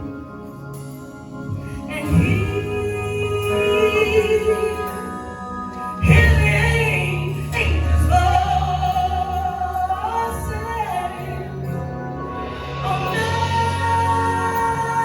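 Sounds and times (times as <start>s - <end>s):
keyboard chords: 0.0s - 15.0s
person singing gospel: 0.0s - 15.0s
bass line: 1.3s - 15.0s.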